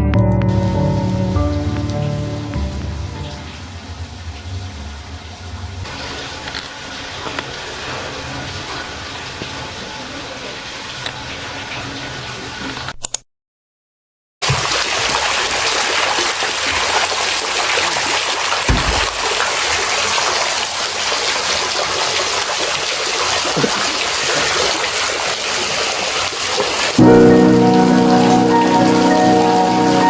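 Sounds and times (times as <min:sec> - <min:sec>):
music: 0:00.0 - 0:03.7, 0:27.0 - 0:30.0
water running and splashing: 0:14.4 - 0:30.0.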